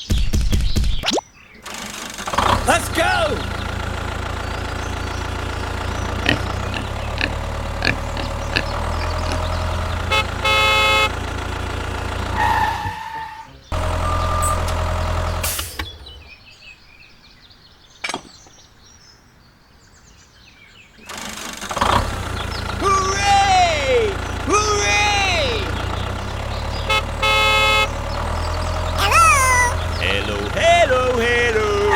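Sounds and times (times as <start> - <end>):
vehicle engine humming: 1.9 - 16.6, 21.1 - 31.9
car horn honking: 2.5 - 16.0, 22.0 - 31.9.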